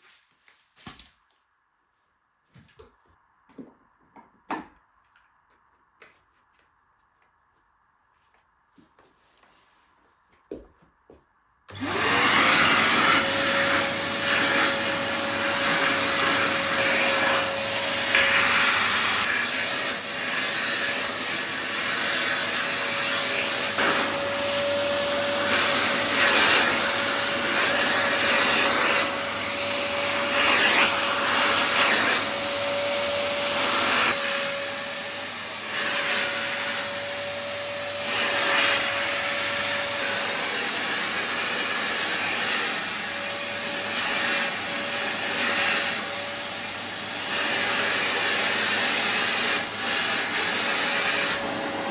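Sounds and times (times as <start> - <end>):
vacuum motor whine: 11.7 - 51.9
vacuum suction rush: 11.7 - 51.9.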